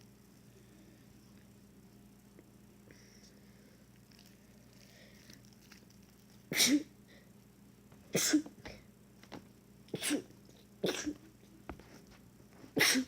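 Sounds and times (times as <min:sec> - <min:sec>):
person sneezing: 0:06.5 - 0:06.9, 0:09.9 - 0:11.2, 0:12.8 - 0:13.0.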